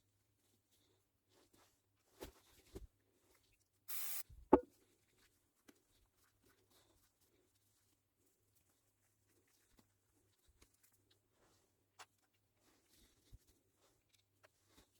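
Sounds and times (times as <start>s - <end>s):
short steady hiss: 3.9s - 4.2s.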